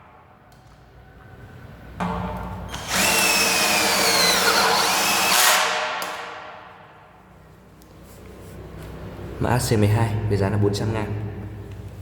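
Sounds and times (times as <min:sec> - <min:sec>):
cordless drill driving screw into steel: 0:02.7 - 0:06.3.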